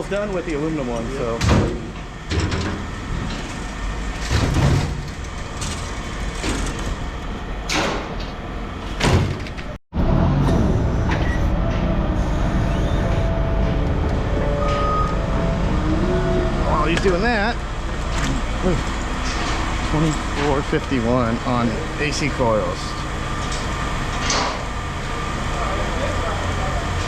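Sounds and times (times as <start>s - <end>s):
vehicle engine running: 10.0s - 27.0s.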